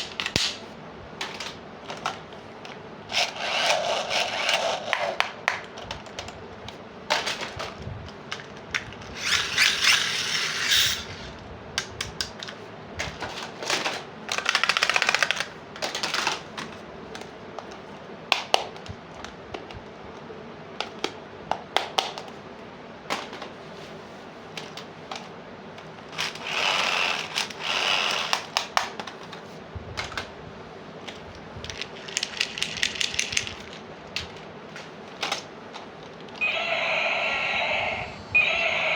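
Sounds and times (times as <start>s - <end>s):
plastic toy pieces clicking: 14.3s - 16.4s, 31.6s - 34.4s.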